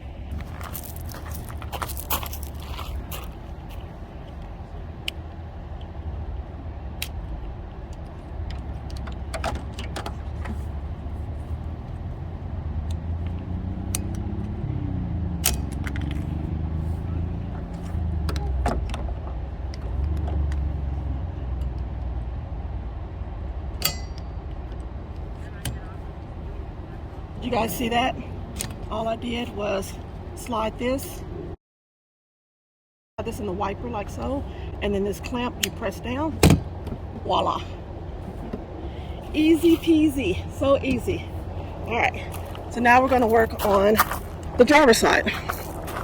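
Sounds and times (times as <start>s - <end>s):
vehicle passing: 0.0s - 7.4s, 10.1s - 23.8s, 33.2s - 46.0s
low outdoor rumble: 0.0s - 31.6s, 33.2s - 46.0s.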